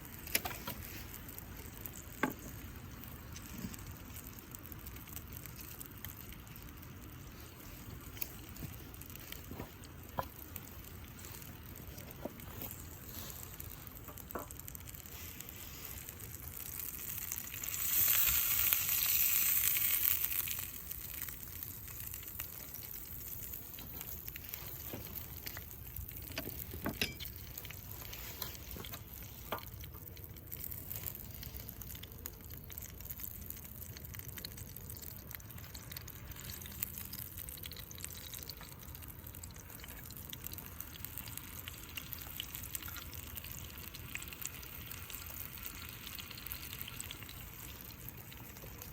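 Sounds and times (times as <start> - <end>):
meat sizzling in a skillet: 0.0 - 48.9.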